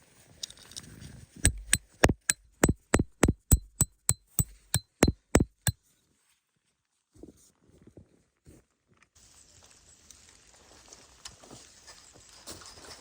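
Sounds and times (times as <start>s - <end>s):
hammer striking metal: 1.5s - 5.7s.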